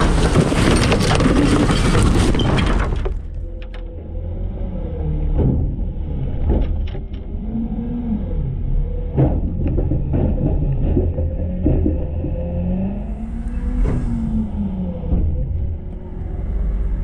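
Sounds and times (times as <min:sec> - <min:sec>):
knocks and rattles: 0:00.0 - 0:04.3, 0:05.3 - 0:07.4, 0:09.1 - 0:13.1
garbage truck rumbling: 0:00.0 - 0:17.0.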